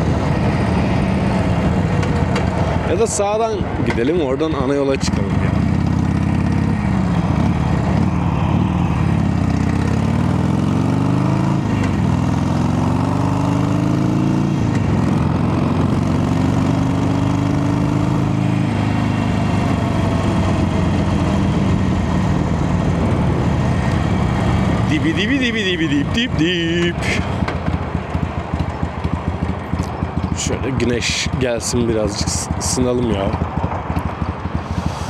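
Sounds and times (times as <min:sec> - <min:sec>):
motorcycle engine accelerating: 0:00.0 - 0:35.0
wind rushing over microphone: 0:19.7 - 0:24.9, 0:33.2 - 0:35.0.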